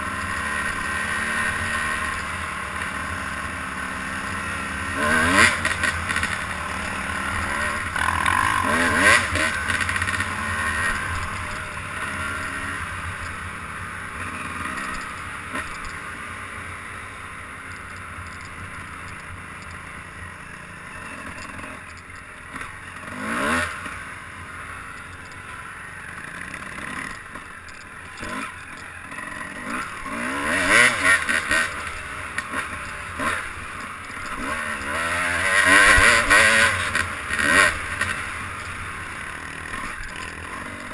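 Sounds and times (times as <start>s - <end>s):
vehicle engine revving: 0.0s - 13.3s, 28.2s - 40.9s.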